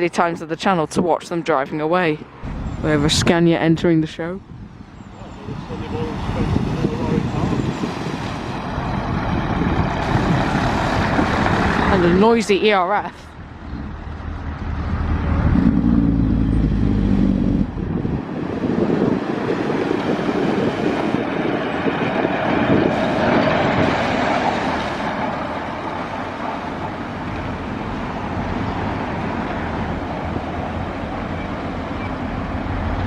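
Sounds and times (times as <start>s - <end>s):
lorry diesel engine driving past: 7.4s - 12.7s, 13.3s - 33.0s.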